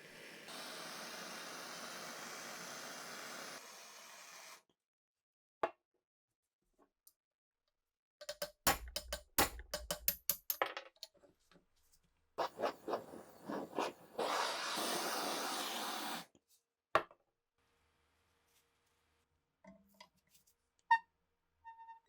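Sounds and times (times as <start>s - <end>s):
steady hiss: 0.0s - 3.7s.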